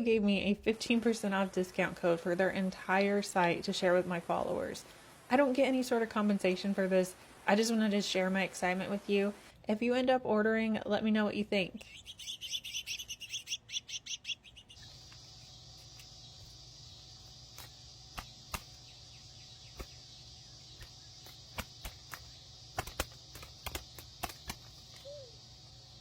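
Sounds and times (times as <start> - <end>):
steady high hiss: 0.0 - 9.6, 14.8 - 26.0
small birds chirping: 11.7 - 26.0
sharp clicks: 20.8 - 25.1.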